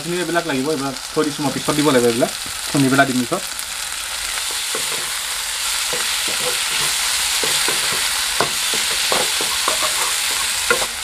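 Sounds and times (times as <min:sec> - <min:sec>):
vegetables sizzling in hot oil: 0:00.0 - 0:11.0
spatula scraping a pan: 0:04.3 - 0:11.0.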